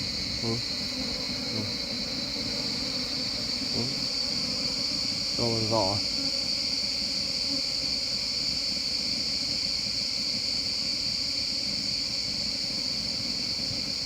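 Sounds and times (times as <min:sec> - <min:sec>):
bees humming: 0:00.0 - 0:06.7
high-pitched insect drone: 0:00.0 - 0:14.0.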